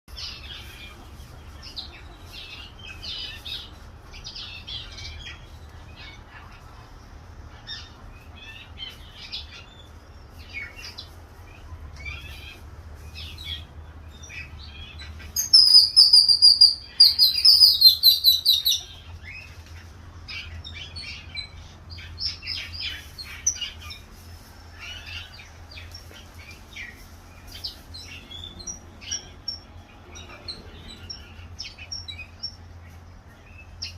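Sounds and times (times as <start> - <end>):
small birds chirping: 0.1 - 33.9
rapid high chirping close by: 13.2 - 19.6.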